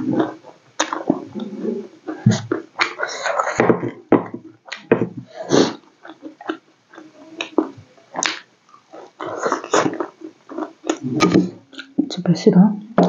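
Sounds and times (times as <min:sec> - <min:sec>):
person chewing with lip-smacks: 0:00.2 - 0:03.6, 0:05.5 - 0:12.0.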